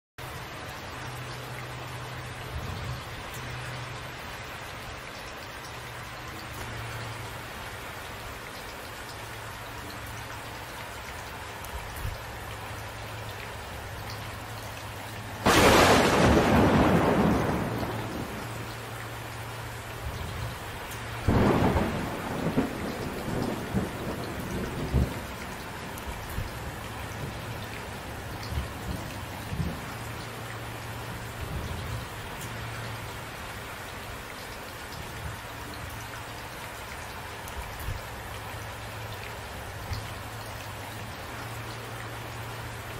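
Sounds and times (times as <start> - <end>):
steady rain: 0.2 - 42.9
thunderclaps: 15.4 - 18.8, 21.2 - 26.6.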